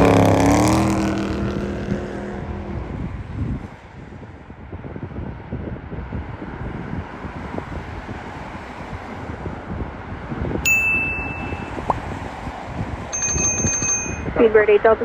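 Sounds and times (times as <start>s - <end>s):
wind buffeting microphone: 0.0s - 15.0s
high steady tone: 10.6s - 12.1s, 13.1s - 15.0s.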